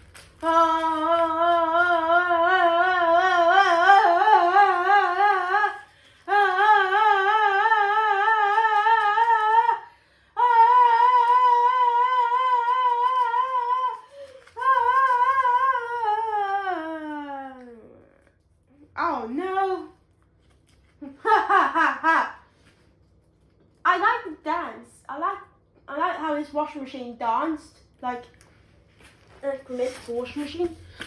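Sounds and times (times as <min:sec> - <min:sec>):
person humming held notes: 0:00.4 - 0:18.1.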